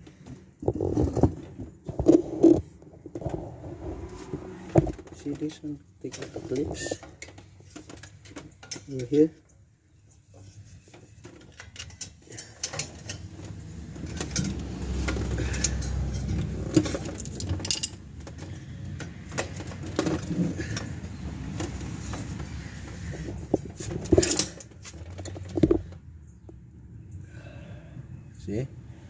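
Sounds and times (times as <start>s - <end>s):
small metal clicks and scrapes: 10.1s - 26.0s.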